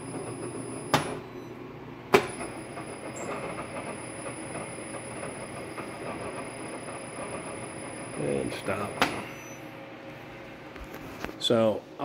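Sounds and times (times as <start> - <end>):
milling machine spindle running: 2.3 - 9.6
faint high whine: 2.3 - 9.8.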